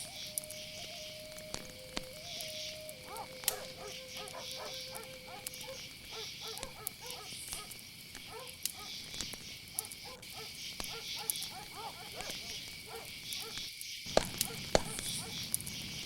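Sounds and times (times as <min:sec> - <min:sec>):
crickets chirring: 0:00.0 - 0:16.0
fire crackling clicks: 0:00.0 - 0:16.0
dogs barking: 0:02.9 - 0:09.0, 0:09.7 - 0:15.5.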